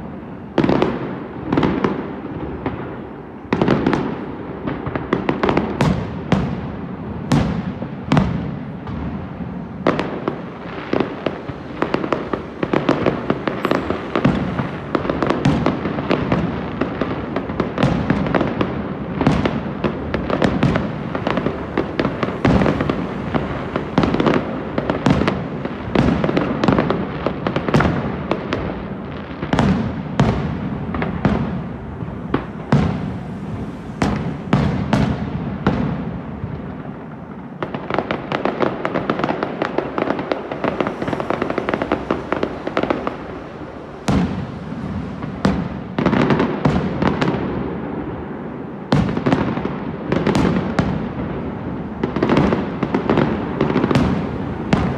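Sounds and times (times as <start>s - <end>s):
fireworks crackling: 0.0s - 54.9s
firework shells bursting: 10.4s - 17.2s.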